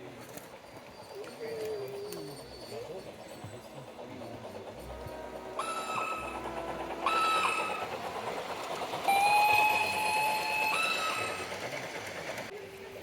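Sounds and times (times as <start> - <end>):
train air horn blasts: 4.9 - 7.9.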